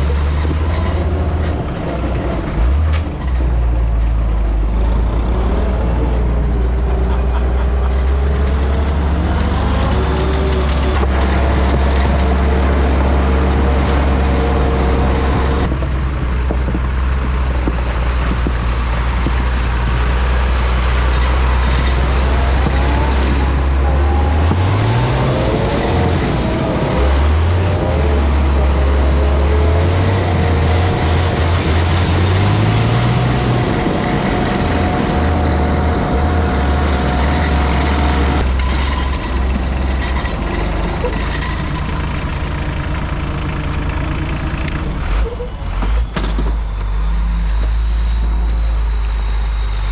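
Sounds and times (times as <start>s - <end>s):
diesel engine revving: 0.0s - 49.9s.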